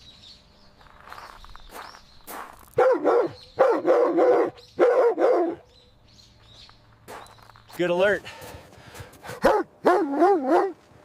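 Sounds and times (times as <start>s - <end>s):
dog barking: 2.8s - 5.6s, 9.3s - 10.8s.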